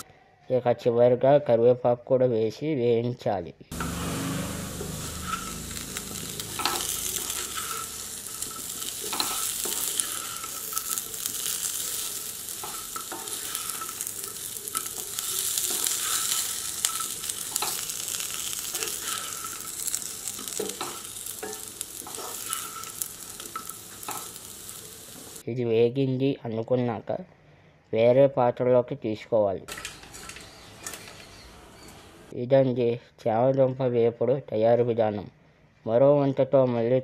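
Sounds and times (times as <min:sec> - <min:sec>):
vegetables sizzling in hot oil: 0:03.7 - 0:25.4
wooden spatula scraping a pan: 0:06.6 - 0:24.4.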